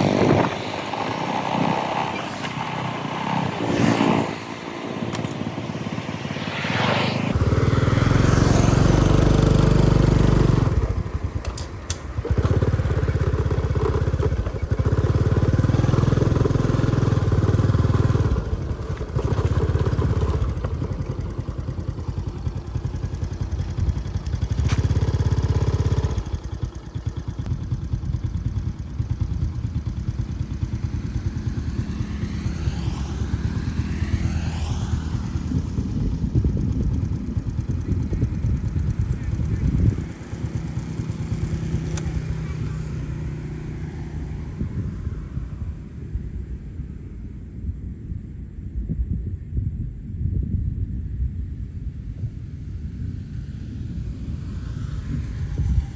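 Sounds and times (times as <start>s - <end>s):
motorbike engine revving: 0.0s - 45.4s.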